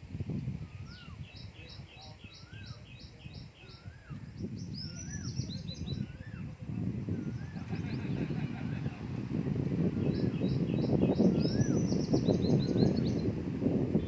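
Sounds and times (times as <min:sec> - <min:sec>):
wind gusting: 0:00.0 - 0:14.0
rising-and-falling bird whistle: 0:00.7 - 0:06.5, 0:10.0 - 0:13.3
high bird chirps: 0:00.8 - 0:06.4, 0:10.0 - 0:13.3.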